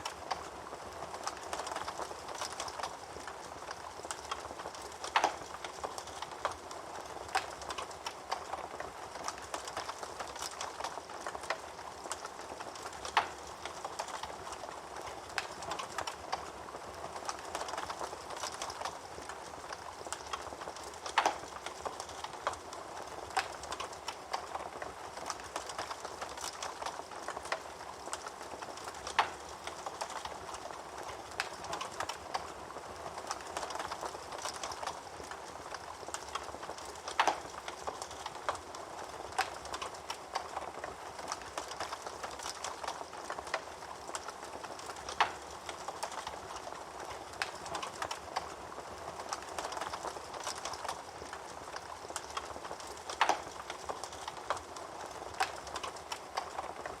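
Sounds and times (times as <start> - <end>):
wood fire crackling: 0.0 - 57.0
fire pops: 17.2 - 32.5, 35.7 - 38.7, 49.2 - 57.0.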